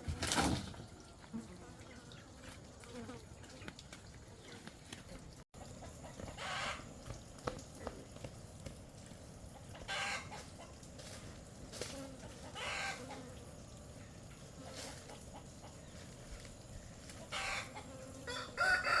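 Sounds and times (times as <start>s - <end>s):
chickens clucking: 5.6s - 7.2s, 9.4s - 10.9s, 12.2s - 13.3s, 14.3s - 16.1s, 17.1s - 19.0s
chicken squawks: 6.3s - 6.9s, 9.8s - 10.4s, 12.4s - 13.2s, 17.3s - 19.0s.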